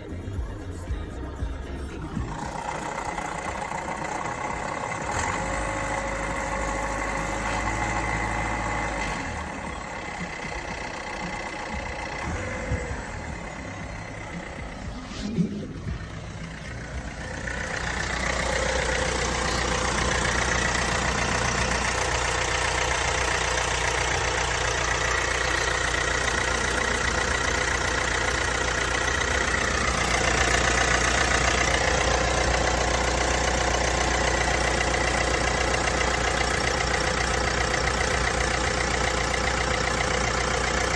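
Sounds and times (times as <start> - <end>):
car engine idling with rattle: 0.0 - 40.9.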